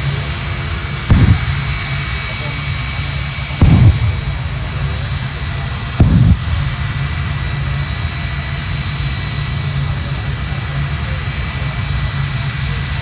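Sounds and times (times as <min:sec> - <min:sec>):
jet engines rushing: 0:00.0 - 0:13.0
afterburner boom: 0:01.0 - 0:02.4, 0:03.5 - 0:07.1.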